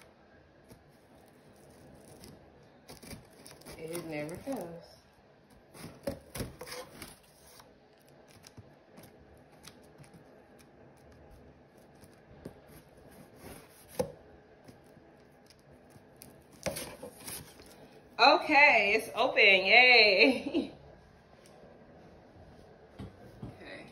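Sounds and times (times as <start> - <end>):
scissors cutting cardboard: 0.7 - 4.7, 5.6 - 14.1, 14.7 - 17.8.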